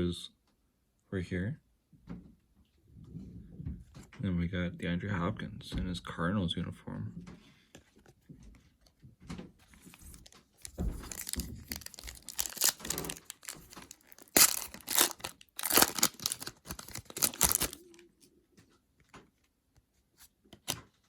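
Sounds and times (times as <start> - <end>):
foil wrapper crinkling and tearing: 9.8 - 18.0.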